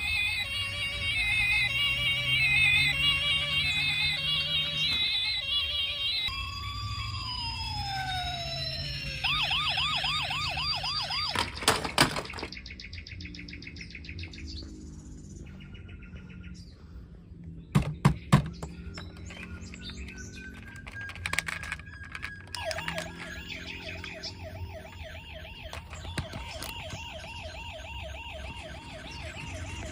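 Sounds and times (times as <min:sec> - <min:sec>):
steady high tone: 0:00.0 - 0:10.5, 0:22.2 - 0:29.9
electronic toy siren: 0:00.0 - 0:12.6, 0:18.4 - 0:29.9
sharp plastic clicks: 0:17.8 - 0:27.3.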